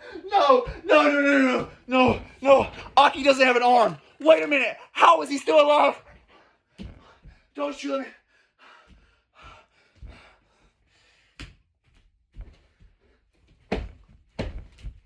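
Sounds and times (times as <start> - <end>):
dull thumps and knocks: 0.4 - 3.4, 13.6 - 15.0.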